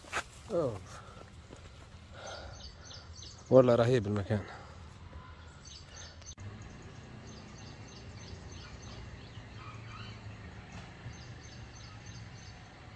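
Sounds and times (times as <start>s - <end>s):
birds chirping: 0.0s - 12.9s.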